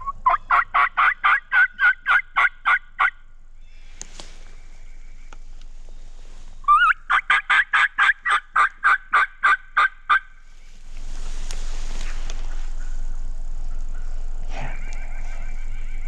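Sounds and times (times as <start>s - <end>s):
steady rushing noise: 10.4s - 16.0s.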